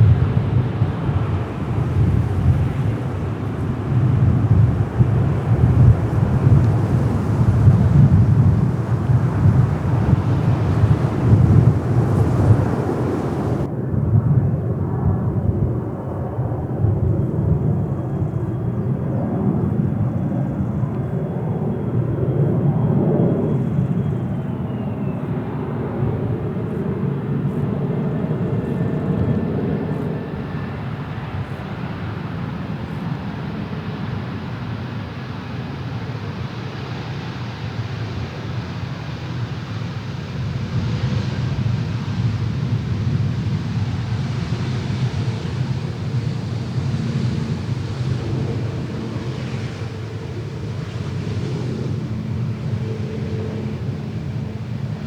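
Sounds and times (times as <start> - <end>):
jet engines rumbling: 0.0 - 55.0
high engine whine: 1.4 - 13.7.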